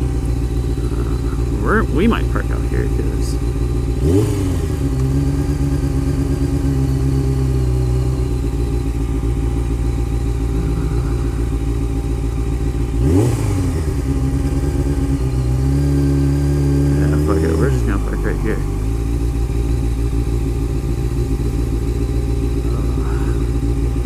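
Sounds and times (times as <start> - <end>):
motorcycle engine revving: 0.0 - 24.0
motorcycle engine running: 0.0 - 24.0.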